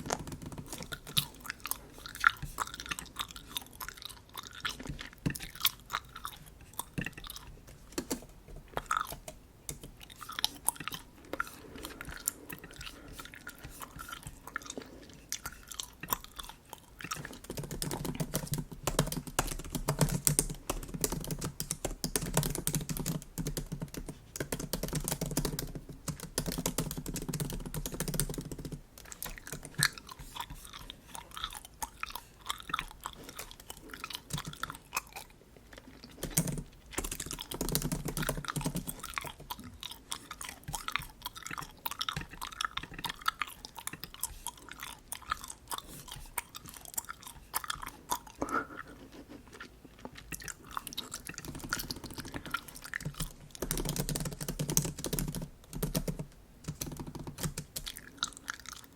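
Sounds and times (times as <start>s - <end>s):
keyboard typing: 0.0s - 1.4s, 17.2s - 30.4s, 33.2s - 34.7s, 36.1s - 39.6s, 51.1s - 58.0s
gum chewing wet smacks: 0.0s - 21.0s, 25.6s - 56.0s, 56.8s - 58.9s.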